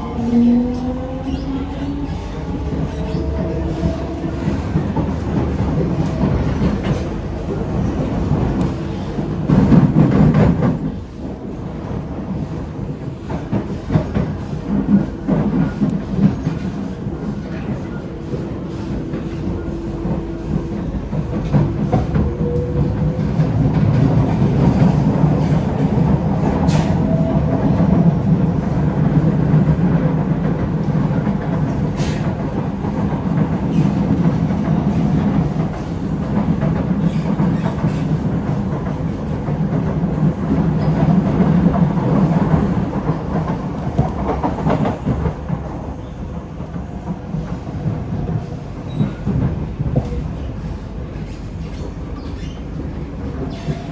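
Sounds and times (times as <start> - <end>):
train wheels rumbling on track: 0.0 - 53.9.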